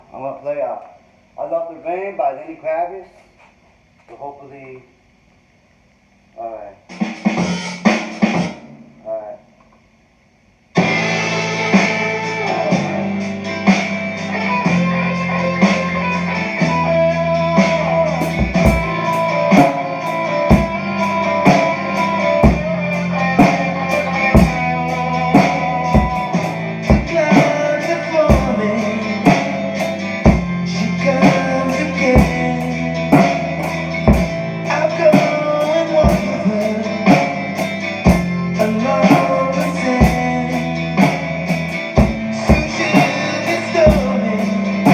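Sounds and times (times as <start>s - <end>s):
drum kit playing: 6.9s - 9.0s, 12.7s - 14.1s, 17.6s - 44.9s
rock song with electric guitar: 10.8s - 44.9s.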